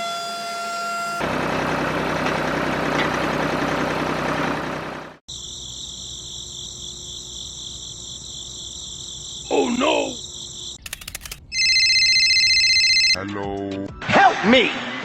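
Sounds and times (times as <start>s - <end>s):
small engine running: 0.0s - 5.2s.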